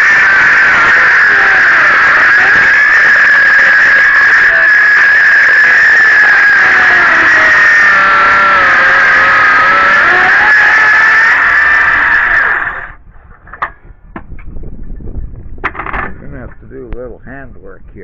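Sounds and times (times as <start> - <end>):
power saw cutting wood: 0.0 - 13.0.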